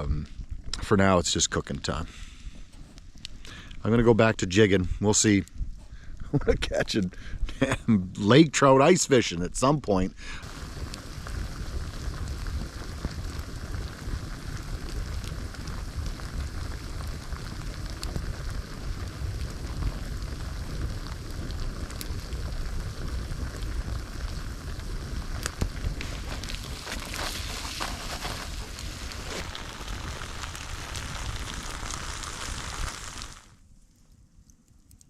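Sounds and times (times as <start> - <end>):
campfire crackling and popping: 0.0 - 35.0
continuous low rumble: 9.3 - 35.0.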